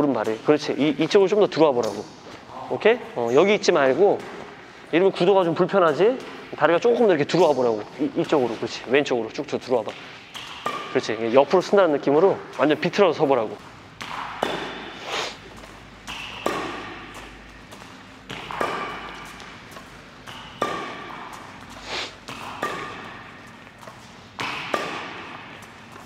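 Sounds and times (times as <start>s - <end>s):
racket hitting shuttlecock: 9.8s - 11.8s, 13.6s - 26.0s.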